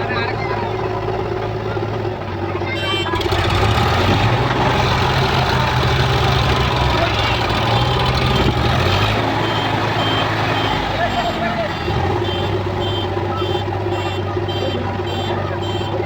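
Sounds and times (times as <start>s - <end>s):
diesel engine drone: 0.0s - 16.0s
reversing alarm beeps: 9.0s - 13.7s.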